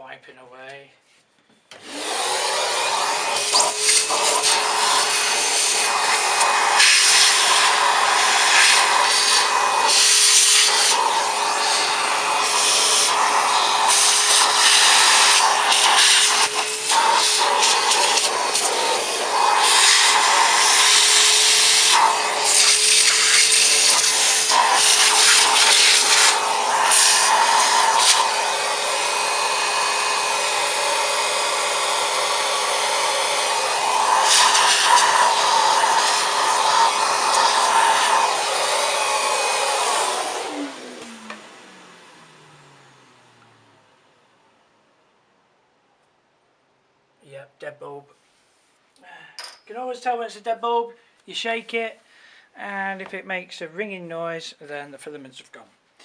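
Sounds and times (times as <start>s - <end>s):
vacuum cleaner running: 1.7s - 44.6s.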